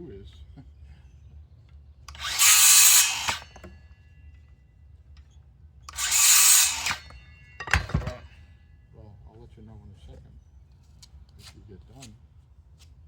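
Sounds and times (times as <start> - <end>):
power drill running: 2.1 - 3.7, 5.9 - 7.1.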